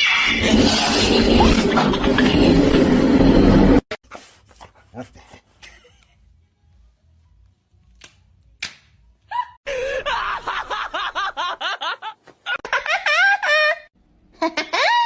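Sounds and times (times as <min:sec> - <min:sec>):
person laughing rapidly: 0:09.3 - 0:15.0.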